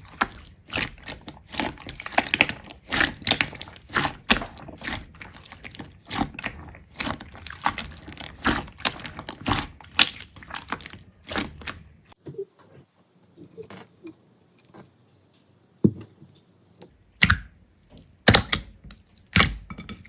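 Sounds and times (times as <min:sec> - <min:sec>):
slime crackling and popping: 0:00.0 - 0:11.9.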